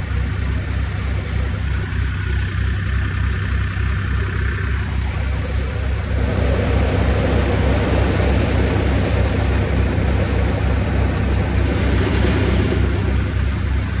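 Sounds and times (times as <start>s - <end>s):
tractor engine running: 0.0s - 14.0s
threshing machine rushing: 6.1s - 14.0s.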